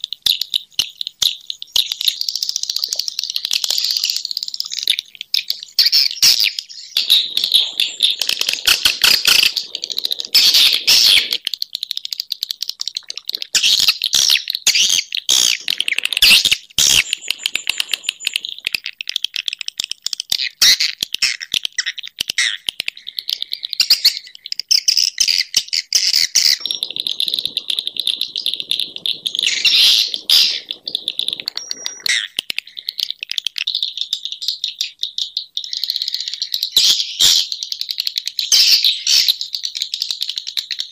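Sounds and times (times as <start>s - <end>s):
swiftlets twittering: 0.1s - 19.7s, 22.9s - 34.2s.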